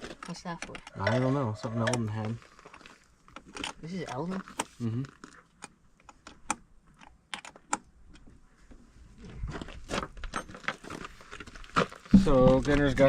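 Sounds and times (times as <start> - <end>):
low handling thumps: 12.1 - 13.0.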